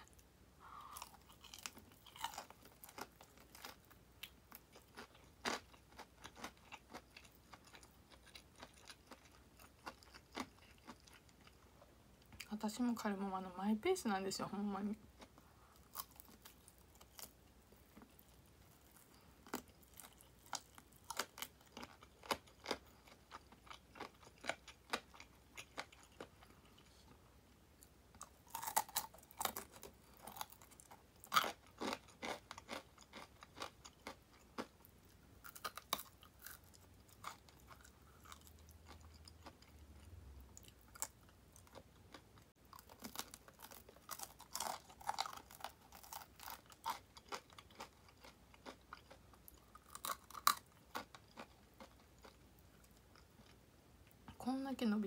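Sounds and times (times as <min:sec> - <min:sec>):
crispy fried chicken being chewed: 0:00.0 - 0:12.5, 0:15.2 - 0:54.2.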